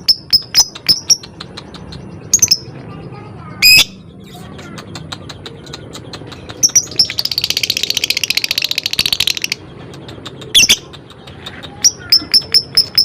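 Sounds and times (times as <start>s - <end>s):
lovebird chattering trill: 0.0s - 13.0s
shrill bird chirp: 0.0s - 13.0s
lovebird ticking notes: 4.6s - 13.0s.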